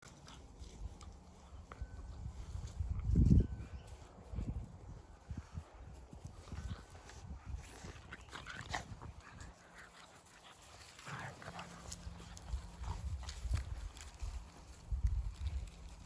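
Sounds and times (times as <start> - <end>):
puppies scuffling: 5.1 - 16.0.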